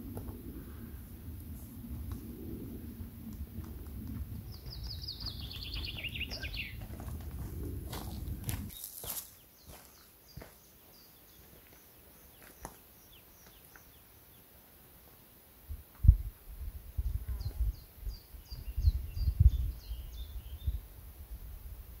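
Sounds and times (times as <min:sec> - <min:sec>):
low rumbling thuds: 0:00.0 - 0:08.7
small bird chirping: 0:04.4 - 0:06.8.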